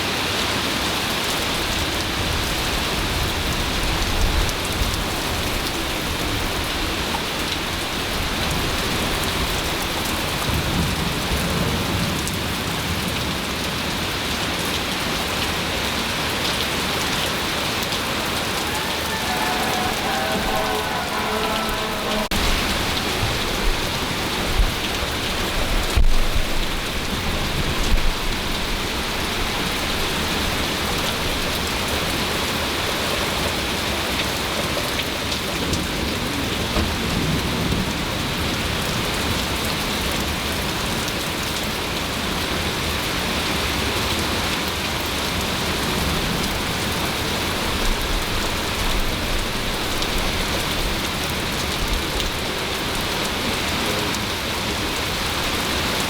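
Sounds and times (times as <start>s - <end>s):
heavy rain pouring: 0.0s - 56.0s
low thunder rumbling: 18.4s - 28.2s.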